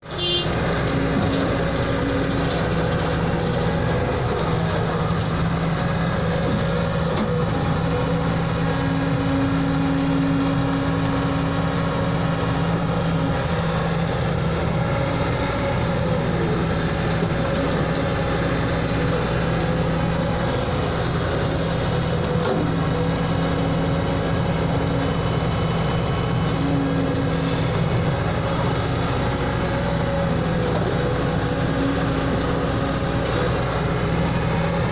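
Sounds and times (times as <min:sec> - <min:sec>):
diesel machinery engine running: 0:00.0 - 0:34.9.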